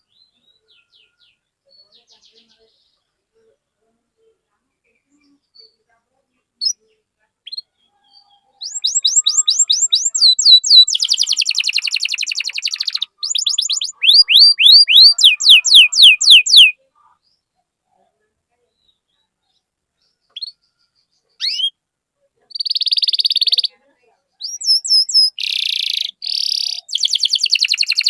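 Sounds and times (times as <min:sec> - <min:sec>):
canary singing: 0:06.6 - 0:17.4, 0:18.7 - 0:21.8, 0:22.5 - 0:28.0.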